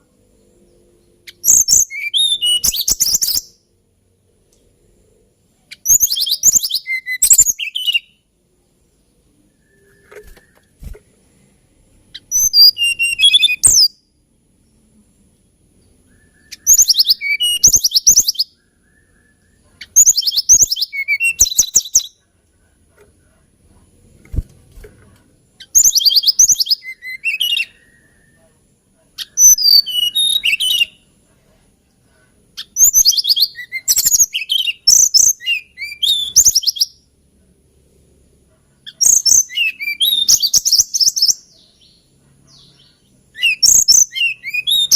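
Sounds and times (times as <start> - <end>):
bird singing warbling phrases: 0.4 - 3.7, 5.6 - 8.3, 12.1 - 14.0, 15.8 - 22.2, 25.3 - 28.5, 29.2 - 31.1, 32.6 - 37.1, 38.8 - 44.9.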